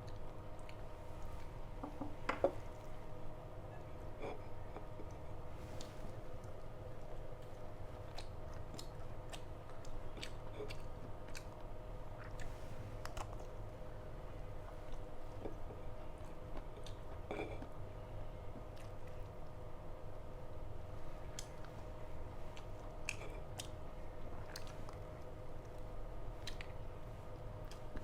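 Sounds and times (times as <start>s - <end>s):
low background hum: 0.0s - 28.0s
person chewing: 5.8s - 11.6s.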